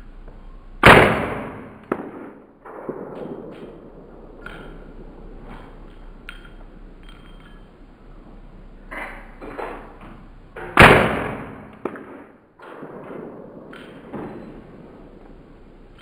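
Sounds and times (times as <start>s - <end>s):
rifle shot: 0.8s - 6.8s, 10.6s - 15.4s
soft knocks and clinks: 5.5s - 7.9s.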